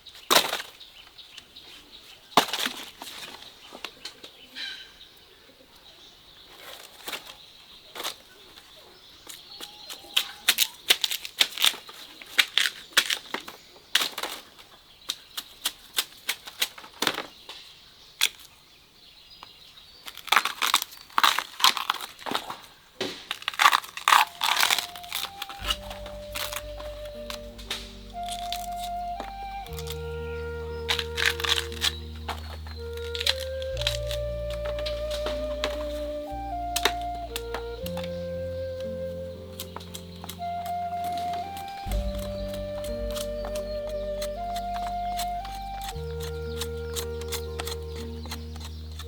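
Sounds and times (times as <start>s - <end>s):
dry leaves and twigs crunching: 6.4s - 18.6s, 19.9s - 49.0s
music: 24.2s - 49.0s.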